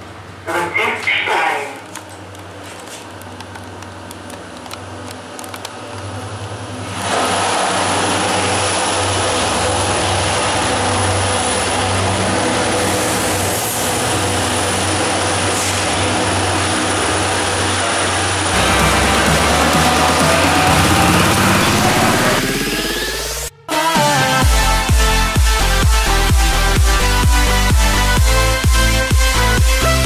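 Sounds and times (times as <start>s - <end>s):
lift car hum: 0.0s - 23.7s
train roaring at platform: 0.0s - 23.8s.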